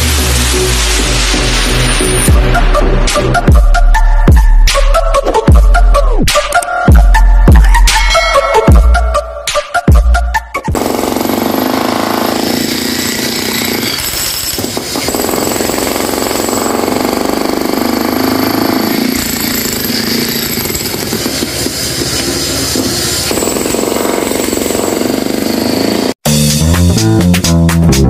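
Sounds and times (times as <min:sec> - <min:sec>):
music: 0:00.0 - 0:18.0, 0:20.5 - 0:25.1, 0:26.2 - 0:28.0
jackhammer hammering: 0:10.7 - 0:26.2.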